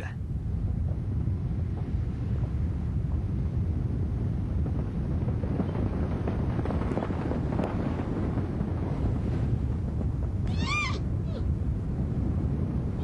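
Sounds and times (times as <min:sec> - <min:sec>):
heavy low rumbling with crackles: 0:00.0 - 0:13.0
high animal call: 0:10.5 - 0:11.4.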